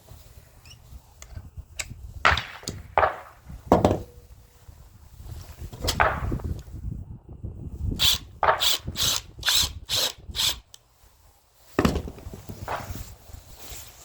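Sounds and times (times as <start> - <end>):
heavy knock: 3.7 - 4.1.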